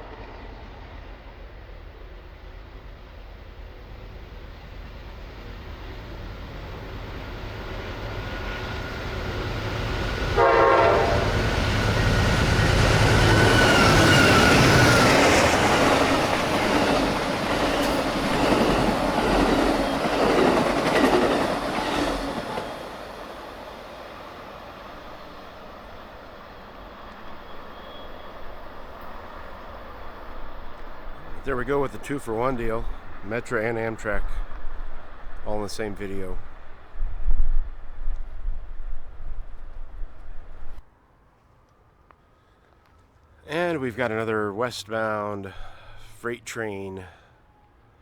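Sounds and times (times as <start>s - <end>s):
passenger trains passing: 0.0s - 41.3s
locomotive horn blast: 10.2s - 12.4s.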